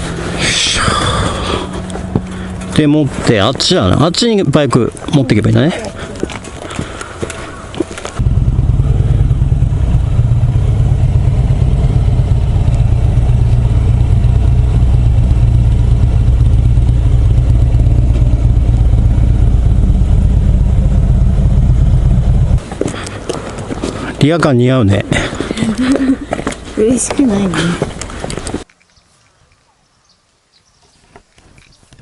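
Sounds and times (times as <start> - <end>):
motorcycle engine running: 0.0 - 4.2, 8.0 - 22.7.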